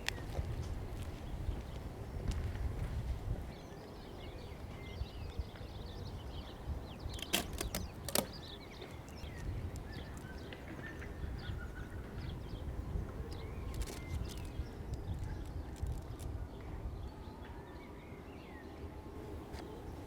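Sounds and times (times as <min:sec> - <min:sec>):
birds chirping: 0:03.5 - 0:18.8
sharp clicks: 0:07.1 - 0:10.4.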